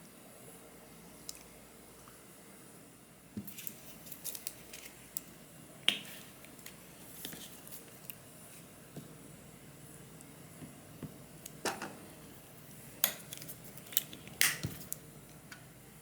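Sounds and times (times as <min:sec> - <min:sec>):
small utensils clicking and tapping: 0:13.0 - 0:15.6.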